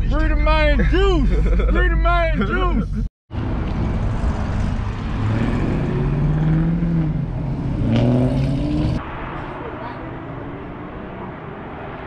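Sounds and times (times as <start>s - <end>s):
car engines accelerating: 3.3s - 12.0s.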